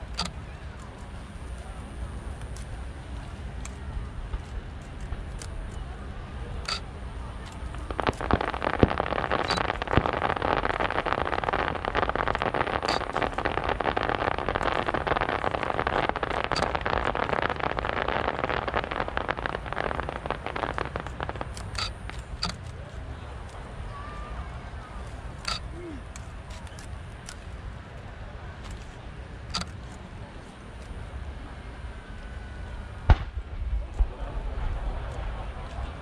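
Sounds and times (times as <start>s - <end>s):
fireworks crackling: 0.0s - 27.6s, 30.6s - 36.0s
firework bangs: 7.6s - 22.6s, 32.9s - 36.0s.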